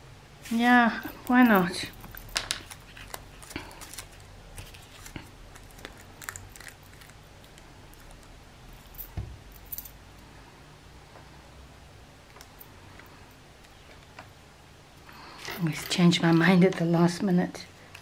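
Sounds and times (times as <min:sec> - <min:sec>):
paper rustling: 0:02.4 - 0:07.1.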